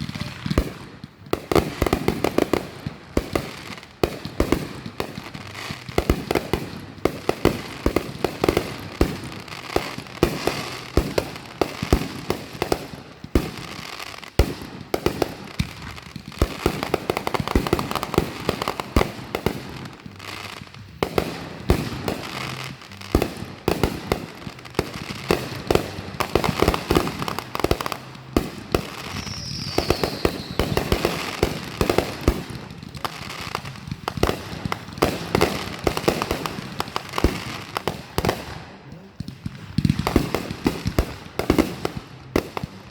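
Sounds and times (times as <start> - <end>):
fireworks bangs and crackling: 0.0 - 42.9
falling firework whistle: 29.0 - 31.1.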